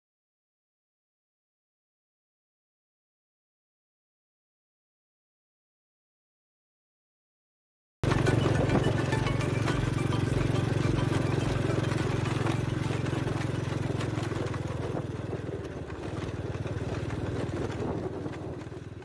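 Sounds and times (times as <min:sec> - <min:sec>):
excavator diesel engine running: 0:08.0 - 0:19.0.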